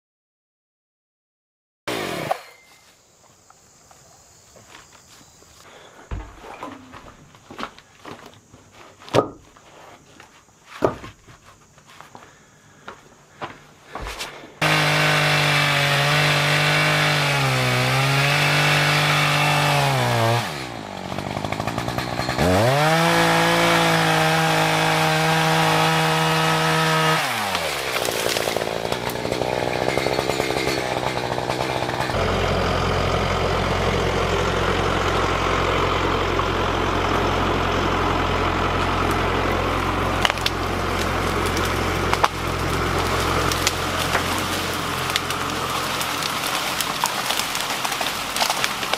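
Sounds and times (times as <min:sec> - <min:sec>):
chainsaw cutting wood: 0:01.9 - 0:02.8, 0:14.0 - 0:48.9.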